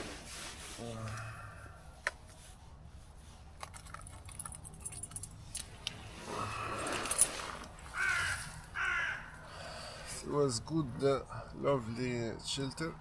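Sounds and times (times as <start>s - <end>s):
rustling: 0.0s - 1.0s, 2.1s - 8.9s
crow cawing: 7.9s - 10.0s.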